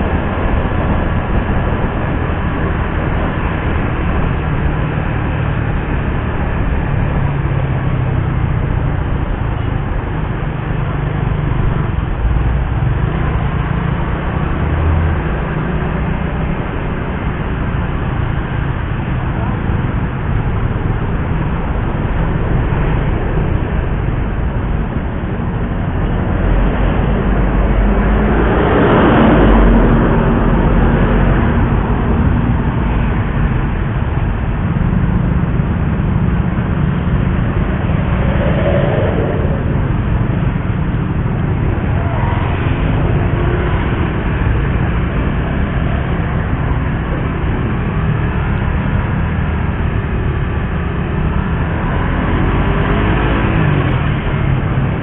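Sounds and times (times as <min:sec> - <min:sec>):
wind and road rush: 0:00.0 - 0:55.0.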